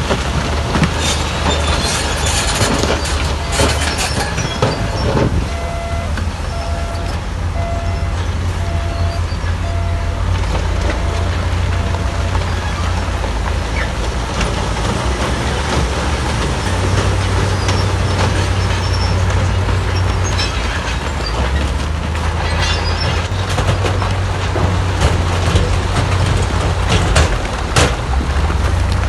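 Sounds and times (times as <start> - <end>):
heavy diesel machinery rumbling: 0.0 - 29.0
short squeaks: 0.6 - 13.1, 16.6 - 21.7, 22.4 - 23.6.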